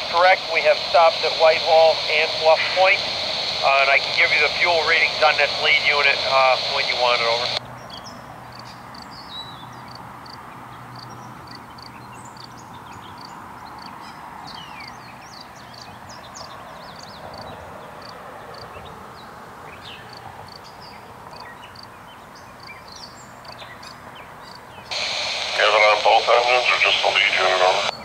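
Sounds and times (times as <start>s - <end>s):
low hum: 0.0s - 7.6s
steady background rush: 0.0s - 7.6s
birds chirping: 0.0s - 28.0s.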